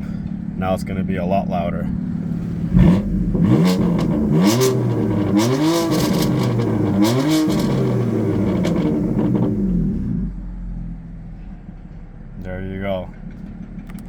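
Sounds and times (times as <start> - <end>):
exhaust crackles: 0.0 - 14.0
car engine revving: 1.8 - 11.6.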